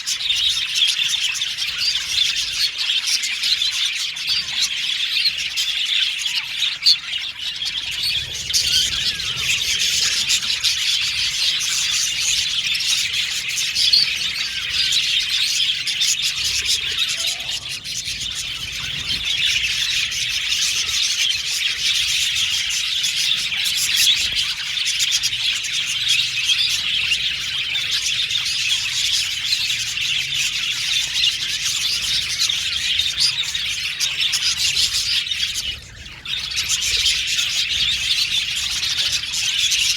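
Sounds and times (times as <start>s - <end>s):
budgies chirping and chattering: 0.0s - 39.9s.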